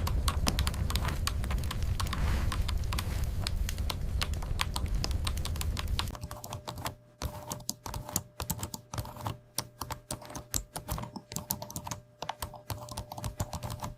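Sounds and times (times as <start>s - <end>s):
low rumble: 0.0s - 6.2s
faint steady hum: 0.0s - 13.9s
rapid typing on keyboard: 0.0s - 13.9s.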